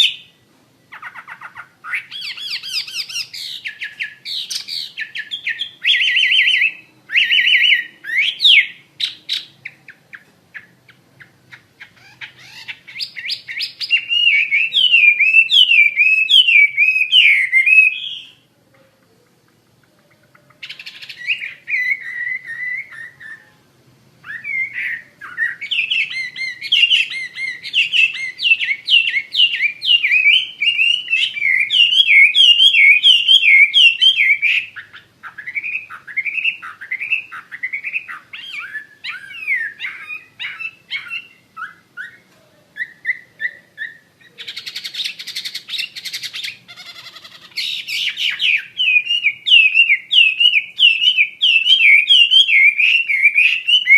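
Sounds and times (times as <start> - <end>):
bird singing warbled notes: 0.0 - 18.5, 24.2 - 53.9.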